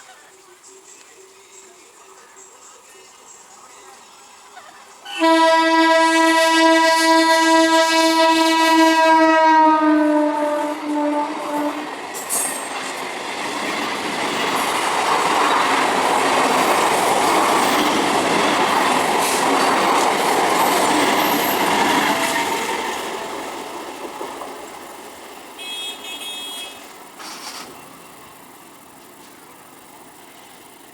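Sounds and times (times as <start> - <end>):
train wheels rumbling on rails: 4.1 - 30.9
train horn: 5.1 - 12.0, 25.6 - 26.9.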